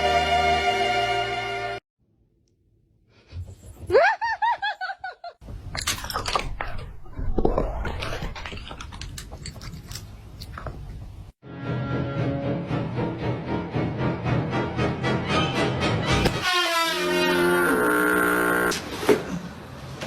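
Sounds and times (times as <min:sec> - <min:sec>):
crunching and chewing: 0:08.1 - 0:11.1.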